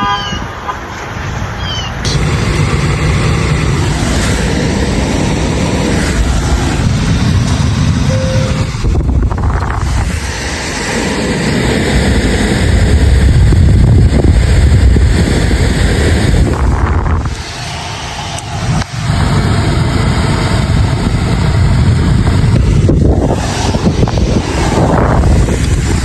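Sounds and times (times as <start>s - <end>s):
wind buffeting microphone: 0.0s - 26.0s
car driving slowly: 2.1s - 10.2s.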